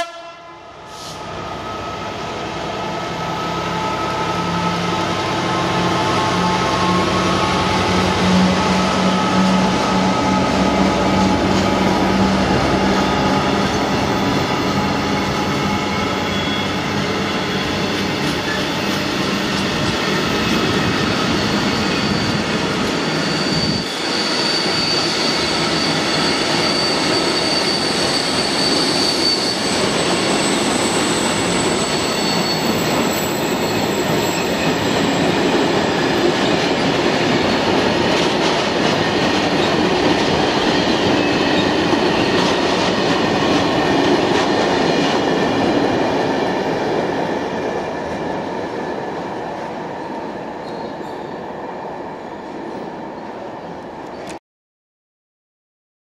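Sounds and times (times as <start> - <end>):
train wheels rumbling on rails: 0.9 - 51.3
high wheel squeal: 6.0 - 36.3, 50.6 - 51.3.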